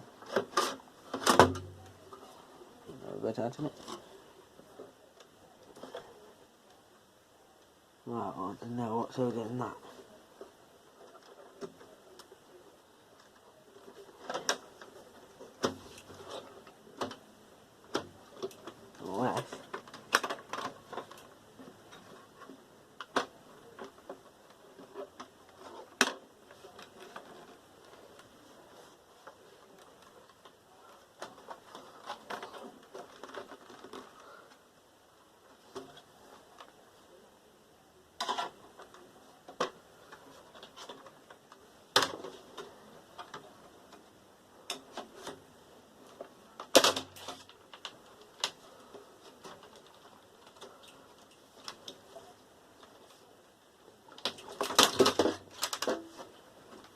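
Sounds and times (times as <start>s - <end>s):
computer case parts clicking: 46.6s - 48.6s, 54.1s - 56.9s.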